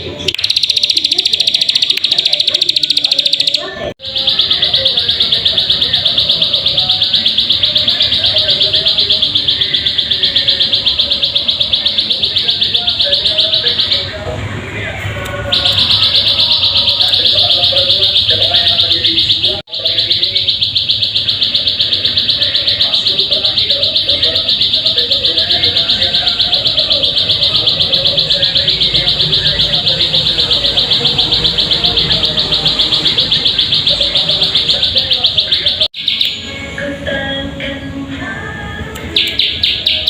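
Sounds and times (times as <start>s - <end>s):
bird singing rapid trill: 0.1s - 14.2s, 15.5s - 36.6s, 39.2s - 40.0s.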